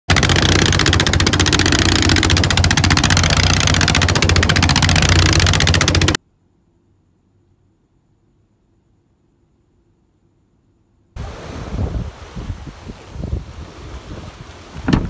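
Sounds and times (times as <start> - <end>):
boat engine running: 0.1 - 6.2.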